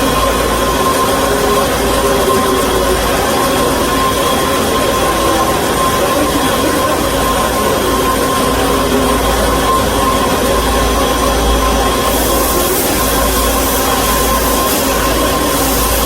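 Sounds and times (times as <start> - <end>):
band saw machine whining: 0.0 - 16.0
bright hiss: 12.0 - 16.0.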